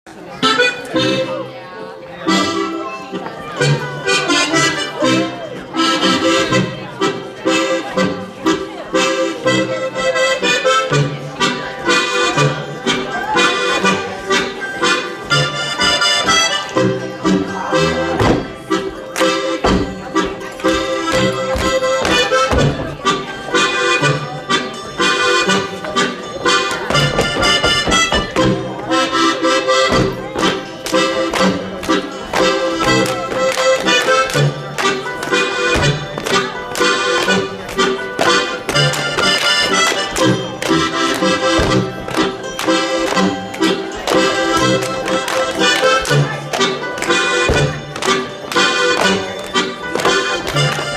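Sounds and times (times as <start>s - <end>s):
accordion playing folk dance tune: 0.1s - 50.9s.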